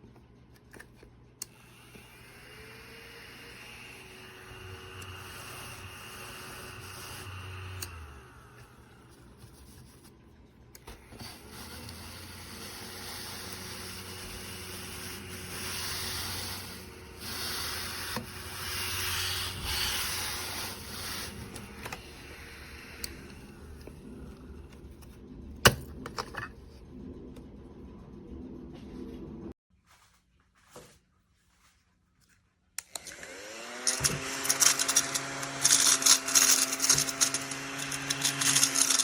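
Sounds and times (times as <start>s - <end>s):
desktop vacuum cleaner humming: 1.5s - 9.8s, 10.8s - 25.2s, 32.9s - 39.0s.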